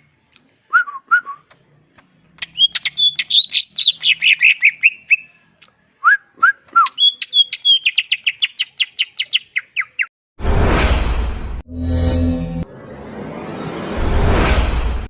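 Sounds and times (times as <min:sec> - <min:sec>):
bird singing whistled notes: 0:02.4 - 0:05.4, 0:06.0 - 0:10.1.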